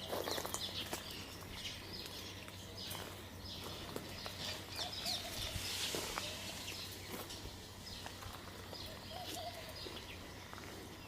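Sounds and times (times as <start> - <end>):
birds chirping: 0.0 - 11.0
low background noise: 0.0 - 11.0
warbling bird call: 4.7 - 7.2.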